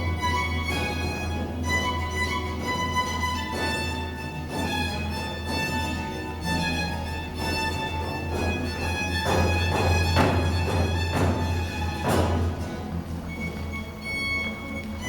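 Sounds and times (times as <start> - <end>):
baroque ensemble with violin: 0.0 - 15.0.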